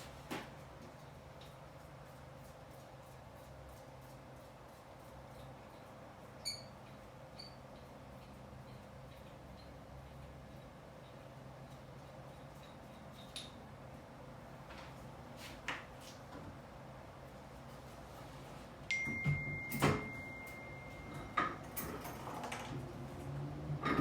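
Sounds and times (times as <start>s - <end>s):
steady high beep: 18.9s - 21.5s.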